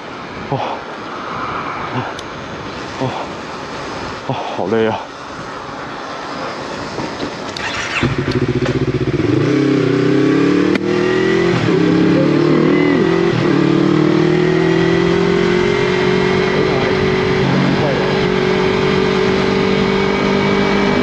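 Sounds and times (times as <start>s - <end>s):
wind rush: 0.0s - 8.5s
motorcycle accelerating through gears: 7.5s - 21.0s.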